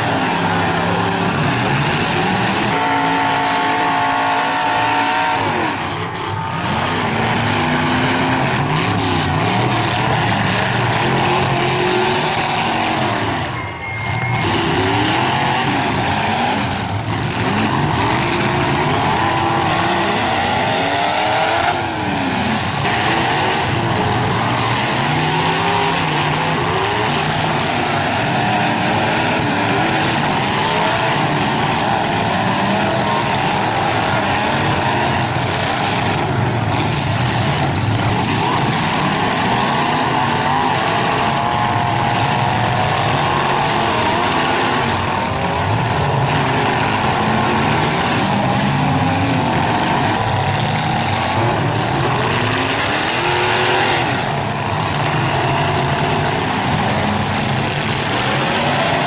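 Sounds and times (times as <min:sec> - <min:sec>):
car engines revving hard: 0:00.0 - 0:59.0
held pitched tone: 0:11.1 - 0:20.9.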